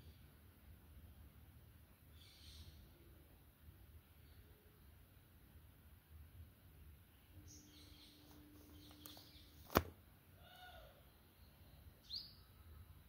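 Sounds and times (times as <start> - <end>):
faint background noise: 0.0 - 13.0
small bird chirp: 2.0 - 3.1, 7.1 - 9.7, 10.4 - 12.9.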